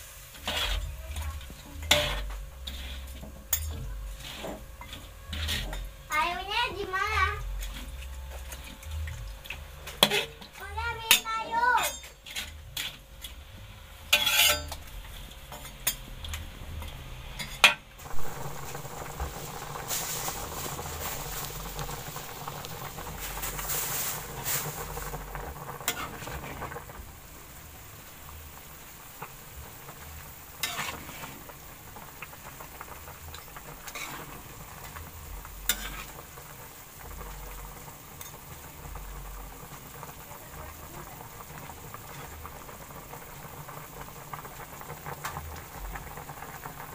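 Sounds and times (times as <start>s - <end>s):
food sizzling in a pan: 0.0s - 46.9s
utensil scraping a pan: 0.3s - 5.9s, 9.8s - 13.4s, 14.1s - 16.0s, 30.6s - 31.4s, 33.9s - 34.4s, 35.6s - 36.2s.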